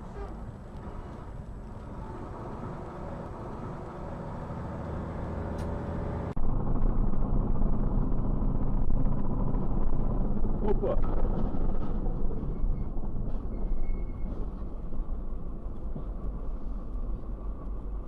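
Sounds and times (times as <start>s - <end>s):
vehicle engine and road rumble: 0.0s - 18.0s.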